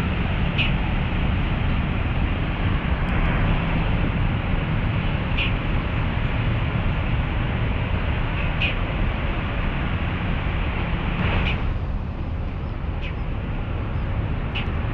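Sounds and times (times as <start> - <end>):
city traffic rumble: 0.0 - 14.9.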